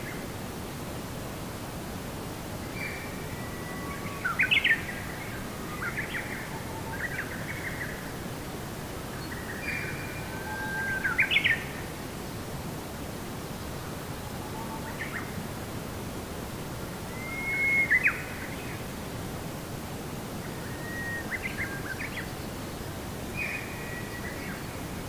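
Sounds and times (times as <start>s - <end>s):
steady background hiss: 0.0s - 25.0s
songbird singing: 2.6s - 8.2s, 9.1s - 11.9s, 17.0s - 18.9s, 20.4s - 25.0s.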